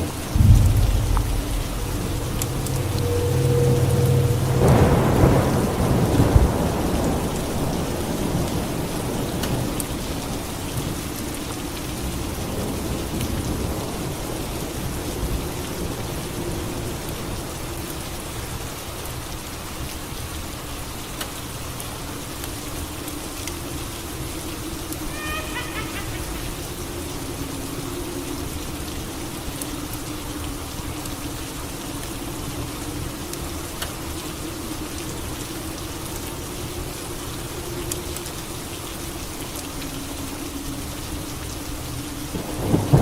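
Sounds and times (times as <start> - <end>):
thunder rumbling: 0.0 - 9.7
heavy rain: 0.0 - 43.0.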